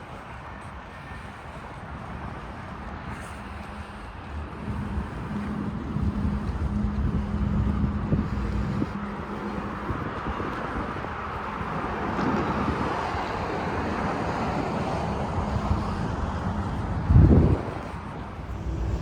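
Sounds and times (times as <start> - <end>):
road traffic: 0.0 - 19.0
wind: 0.0 - 19.0
wind buffeting microphone: 0.0 - 19.0.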